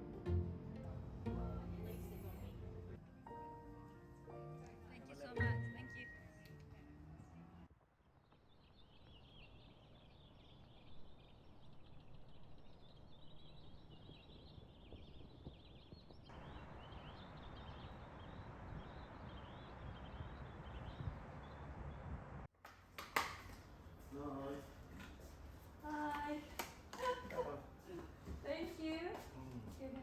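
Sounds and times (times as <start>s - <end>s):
small birds chirping: 8.1s - 22.2s.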